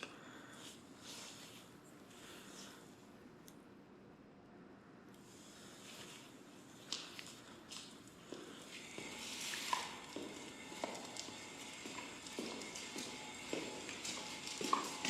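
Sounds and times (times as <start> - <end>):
footsteps on hard floor: 6.9 - 15.0.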